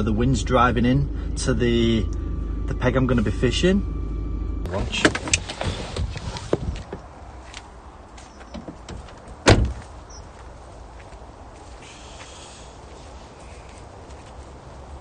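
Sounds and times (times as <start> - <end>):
car door opening clicks: 8.4 - 9.8
car door slam: 8.6 - 9.8.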